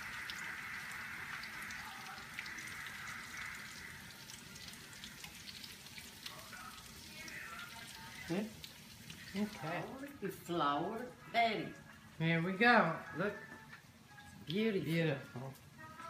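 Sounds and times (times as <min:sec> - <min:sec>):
patties sizzling in oil: 0:00.0 - 0:16.0.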